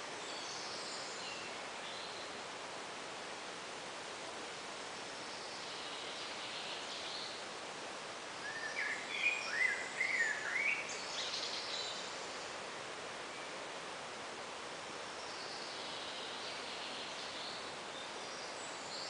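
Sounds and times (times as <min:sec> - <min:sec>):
steady hiss: 0:00.0 - 0:19.0
songbird chirping: 0:05.2 - 0:07.6, 0:08.3 - 0:13.7, 0:15.1 - 0:19.0.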